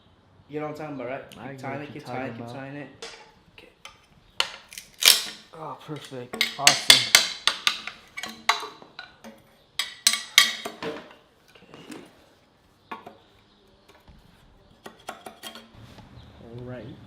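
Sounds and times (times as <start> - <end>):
hard objects knocking and clattering: 3.0 - 12.1.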